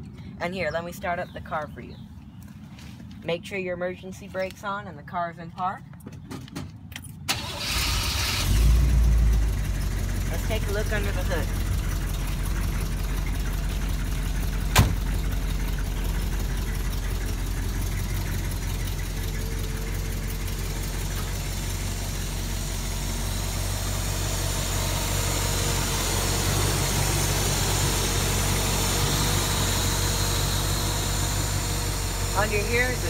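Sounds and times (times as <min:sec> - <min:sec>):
car engine idling: 0:07.3 - 0:33.0
car door slamming: 0:14.7 - 0:15.2.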